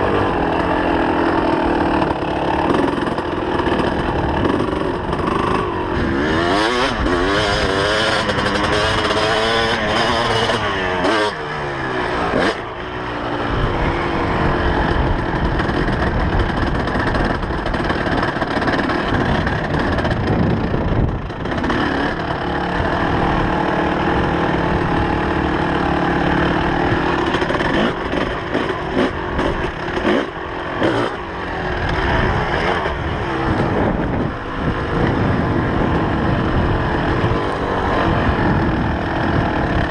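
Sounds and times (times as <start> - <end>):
motorcycle engine revving: 0.0 - 39.9
motorcycle knocking over bumps: 14.9 - 22.4.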